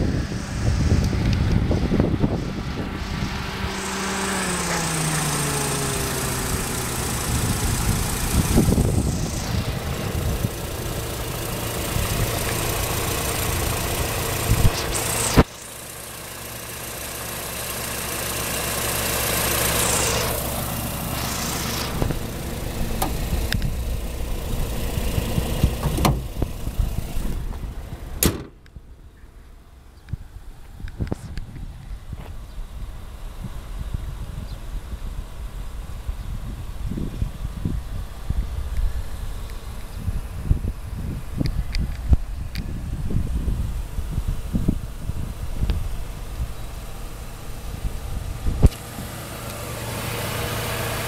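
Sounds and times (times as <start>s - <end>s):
car engine idling: 0.0s - 51.0s
car hood thump: 25.8s - 26.3s, 28.2s - 28.6s.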